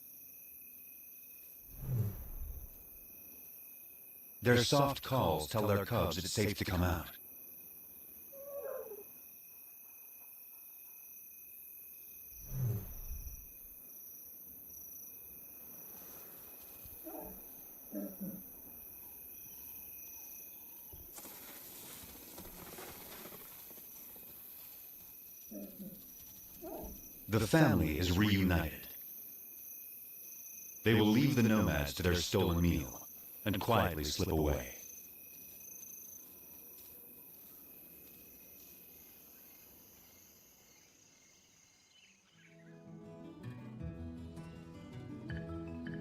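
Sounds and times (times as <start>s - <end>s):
insects chirring: 0.0s - 42.7s
soft lion call: 8.3s - 9.1s
rustling: 20.9s - 27.2s.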